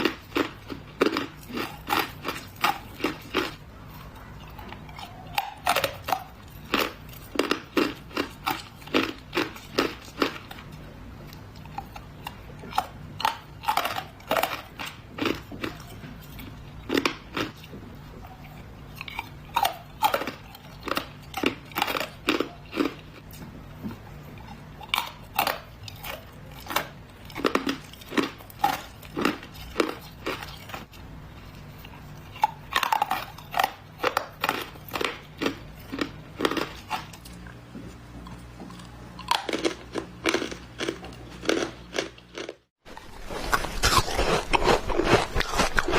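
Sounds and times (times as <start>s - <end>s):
ice cubes crunched between teeth: 0.0s - 3.6s, 24.8s - 30.9s, 39.2s - 45.9s.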